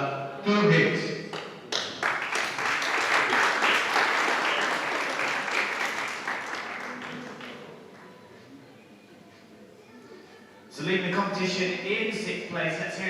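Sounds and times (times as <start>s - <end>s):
audience applauding: 1.3s - 7.7s.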